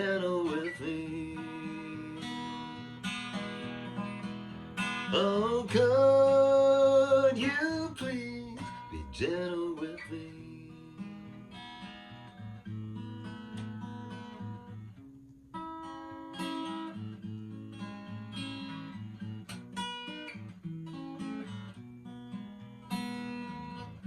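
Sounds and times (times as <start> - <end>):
acoustic guitar chords: 0.0 - 24.0.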